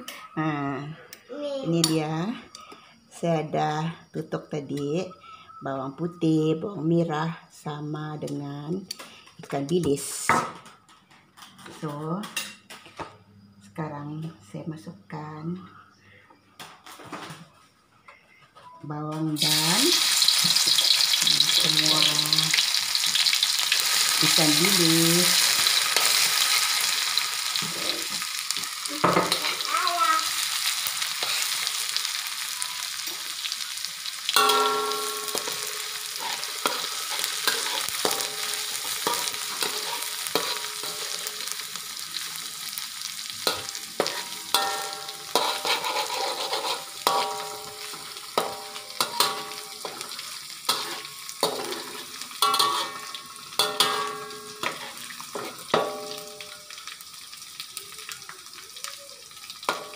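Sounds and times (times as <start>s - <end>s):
food sizzling in hot oil: 19.3s - 59.9s
metal spatula clinking on pan: 34.3s - 41.5s, 43.4s - 56.9s, 59.6s - 59.9s.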